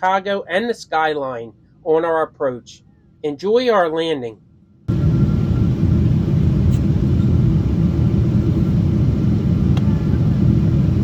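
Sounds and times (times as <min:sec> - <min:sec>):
airliner cabin engine rumble: 0:04.9 - 0:11.0.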